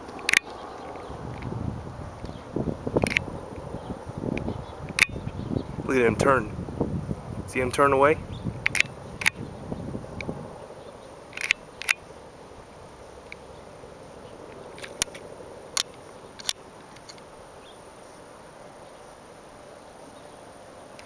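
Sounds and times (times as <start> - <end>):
camera handling clicks: 3.0 - 3.2, 14.8 - 15.2.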